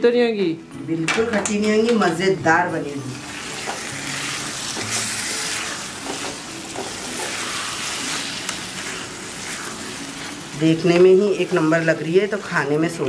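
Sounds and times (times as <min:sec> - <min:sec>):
vegetables sizzling in a pan: 0:02.5 - 0:13.0
wooden spatula stirring: 0:03.6 - 0:13.0.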